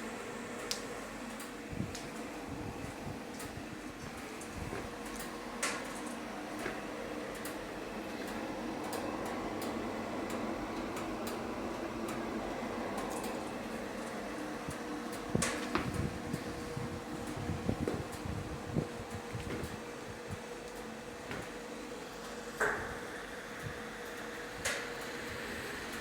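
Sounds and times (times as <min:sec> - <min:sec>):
stove fan humming: 0:00.0 - 0:26.0.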